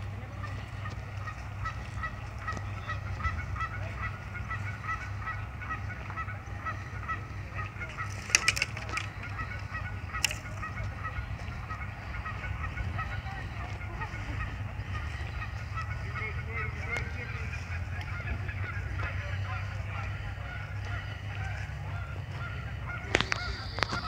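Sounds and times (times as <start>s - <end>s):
geese honking: 0.0s - 24.0s
sharp cracks: 8.0s - 9.2s.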